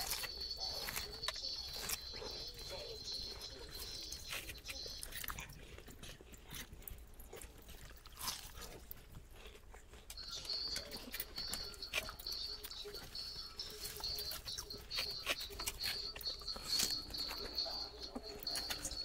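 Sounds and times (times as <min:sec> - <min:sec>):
person chewing noodles: 0:00.0 - 0:19.0
faint high-pitched tone: 0:10.2 - 0:19.0.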